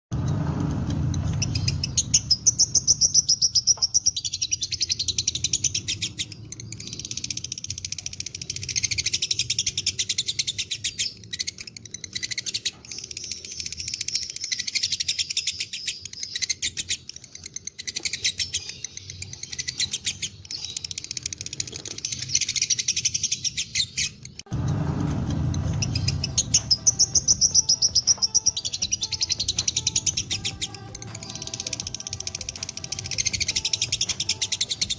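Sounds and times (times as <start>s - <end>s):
low rumble: 0.1s - 3.2s, 24.5s - 30.2s
lovebird trilling: 25.6s - 34.9s.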